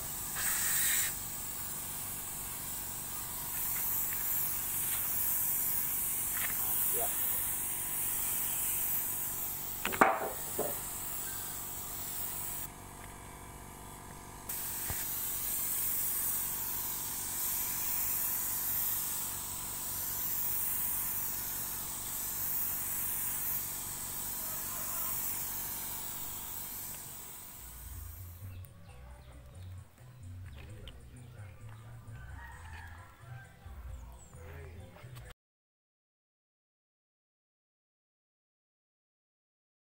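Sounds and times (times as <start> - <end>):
spray gun hissing: 0.0 - 12.7, 14.5 - 28.6.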